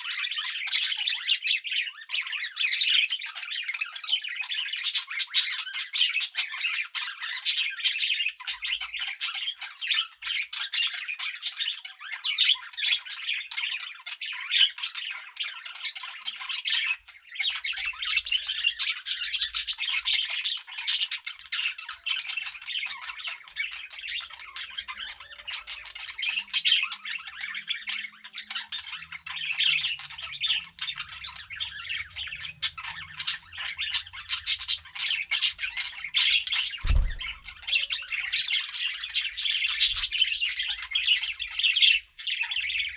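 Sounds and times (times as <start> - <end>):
budgerigars chattering: 17.6 - 42.9
low thump: 36.8 - 37.5.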